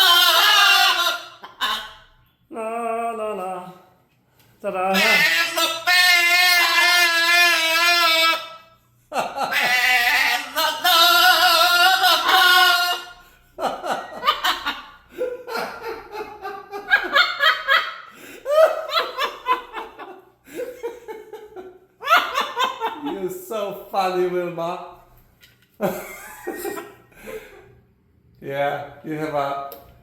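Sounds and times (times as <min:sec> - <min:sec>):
parrot mimicking laughter: 0:00.0 - 0:02.2, 0:04.9 - 0:23.3.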